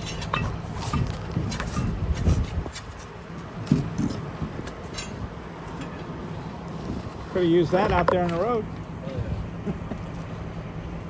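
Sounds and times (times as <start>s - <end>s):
metal tools clanking: 0.0s - 2.3s, 4.9s - 6.1s, 10.0s - 10.5s.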